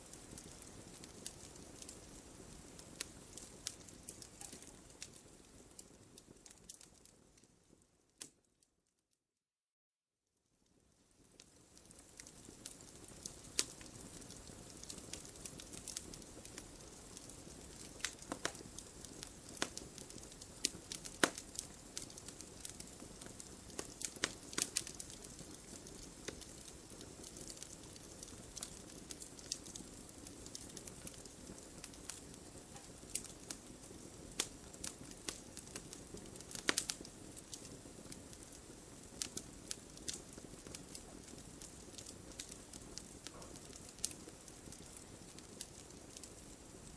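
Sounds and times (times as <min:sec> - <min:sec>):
wood fire crackling and popping: 0:00.0 - 0:08.5, 0:10.6 - 0:46.9.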